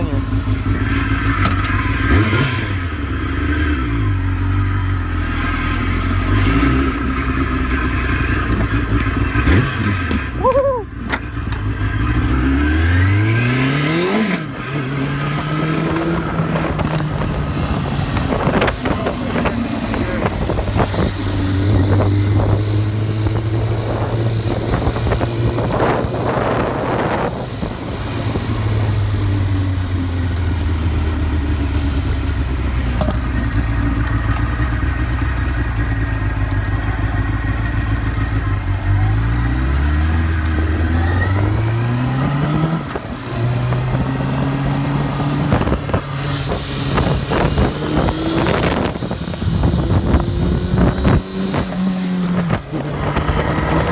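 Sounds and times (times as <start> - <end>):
motorcycle engine accelerating: 0.0 - 53.9
wind buffeting microphone: 15.2 - 29.4, 42.6 - 53.9.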